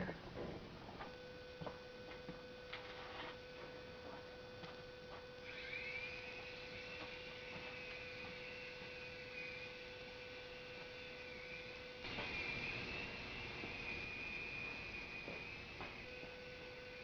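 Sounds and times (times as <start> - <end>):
steady low hum: 0.0 - 17.0
toy helicopter motors whining: 5.4 - 17.0.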